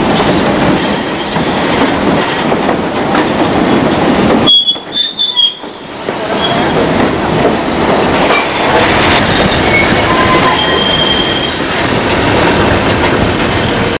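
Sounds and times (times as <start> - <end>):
train rumble and clatter: 0.0 - 14.0
high-pitched wheel squeals: 9.4 - 11.6.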